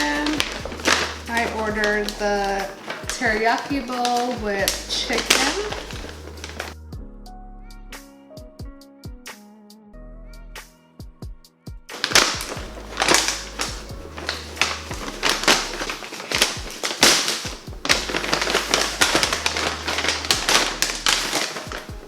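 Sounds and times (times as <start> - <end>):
food packaging crinkling: 0.0 - 6.8, 11.9 - 22.0
background music with bass: 5.8 - 11.9.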